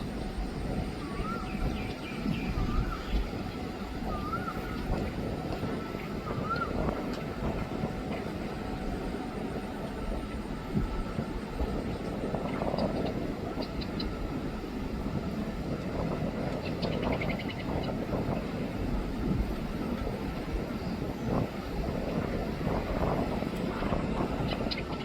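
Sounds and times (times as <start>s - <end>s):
train rumbling: 0.0s - 25.0s
wind buffeting microphone: 0.0s - 25.0s.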